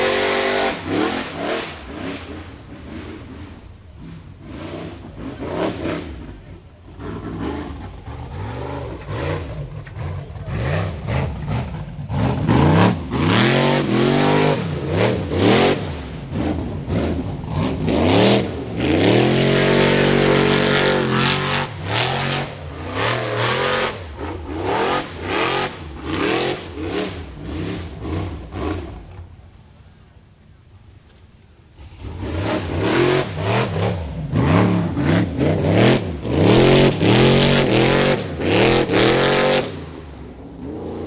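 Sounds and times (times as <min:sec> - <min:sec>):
buggy engine revving: 0:00.0 - 0:31.0, 0:31.6 - 0:41.0.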